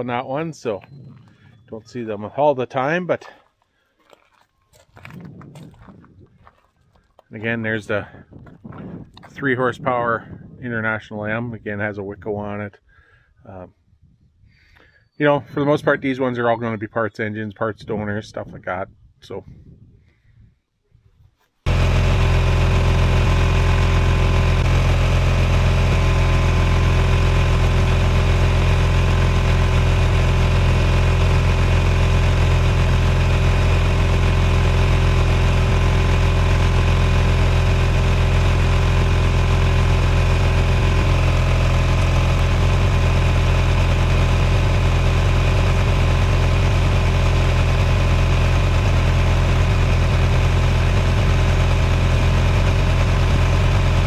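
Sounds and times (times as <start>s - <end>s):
engine idling: 21.7s - 54.0s.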